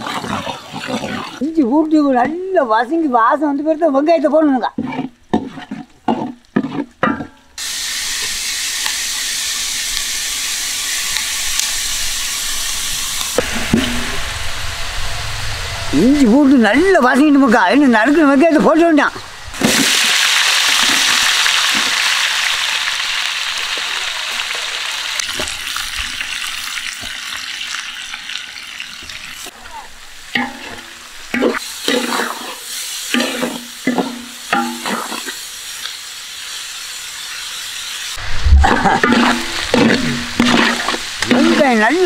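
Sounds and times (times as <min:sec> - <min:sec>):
onions sizzling in hot oil: 0:00.0 - 0:42.0
voice: 0:01.1 - 0:05.1, 0:15.9 - 0:19.2, 0:29.6 - 0:29.9, 0:38.5 - 0:40.0, 0:41.2 - 0:42.0.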